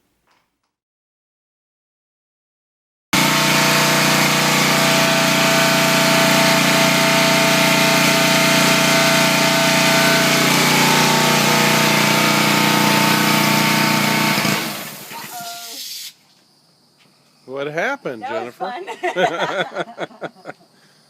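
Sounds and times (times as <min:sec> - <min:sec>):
pressure washer engine droning: 0:03.2 - 0:15.7
high-pressure spray hissing: 0:03.2 - 0:16.2.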